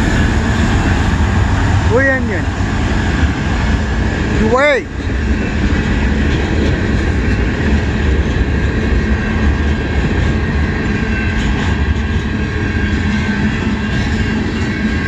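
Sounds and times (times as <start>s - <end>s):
freight train rolling past: 0.0s - 15.0s
steel wheels rumbling on rail: 0.0s - 15.0s.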